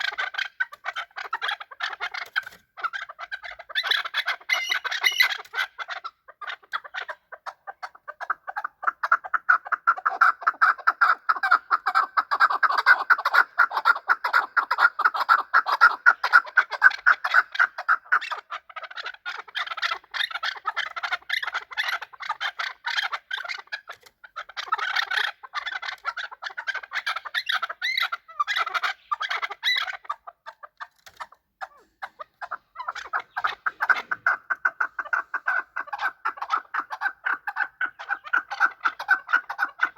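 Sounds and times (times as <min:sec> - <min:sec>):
partridges clucking: 0:24.8 - 0:39.9.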